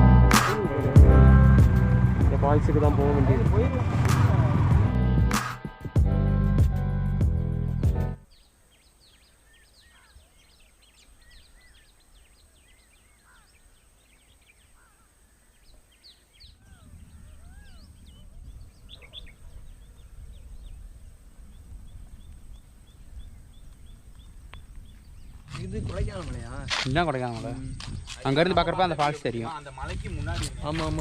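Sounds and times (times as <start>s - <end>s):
low rumble: 0.9s - 5.4s, 16.6s - 25.2s
birds chirping and calling: 8.2s - 31.0s.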